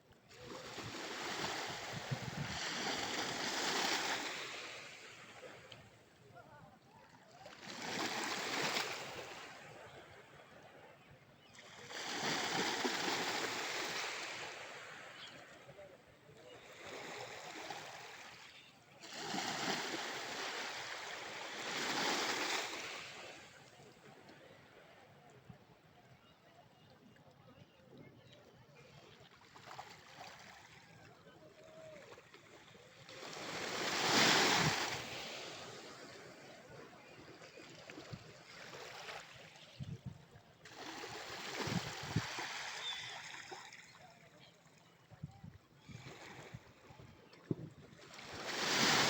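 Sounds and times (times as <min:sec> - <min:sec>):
waves washing on sandy shore: 0:00.3 - 0:05.7, 0:11.8 - 0:15.2, 0:16.7 - 0:23.7, 0:33.0 - 0:39.7, 0:40.6 - 0:43.9, 0:48.0 - 0:49.0.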